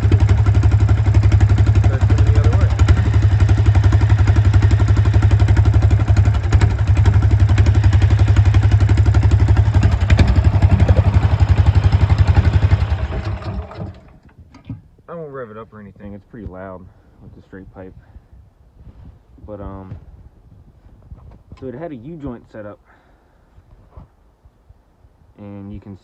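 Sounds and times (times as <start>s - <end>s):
engine idling loud exhaust: 0.0s - 14.2s.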